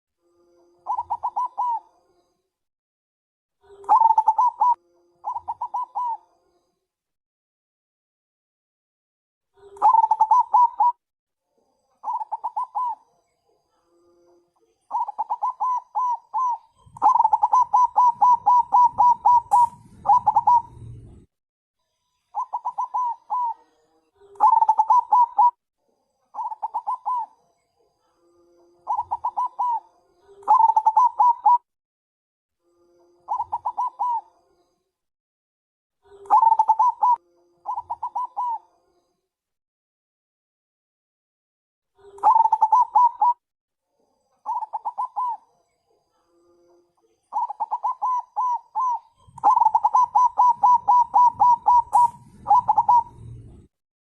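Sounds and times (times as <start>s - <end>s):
dove cooing: 0.8s - 1.9s, 3.7s - 6.2s, 9.6s - 11.0s, 12.0s - 13.0s, 14.9s - 21.3s, 22.4s - 23.6s, 24.2s - 25.6s, 26.4s - 27.4s, 28.8s - 31.7s, 33.3s - 34.3s, 36.1s - 38.6s, 42.0s - 43.4s, 44.5s - 45.4s, 47.3s - 53.7s.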